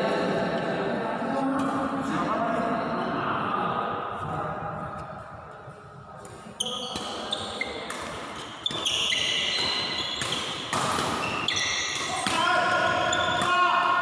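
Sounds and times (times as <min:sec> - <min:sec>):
racket hitting shuttlecock: 0:06.2 - 0:14.0
sneakers squeaking on court floor: 0:06.3 - 0:13.6.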